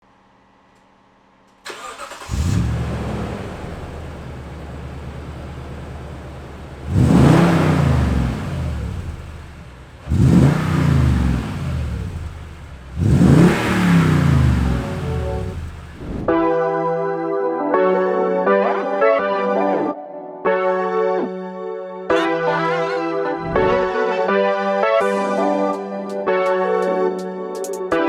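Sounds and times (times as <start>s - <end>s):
engine idling: 1.7s - 16.1s
engine cranking: 1.7s - 16.2s
engine revving: 1.7s - 16.3s.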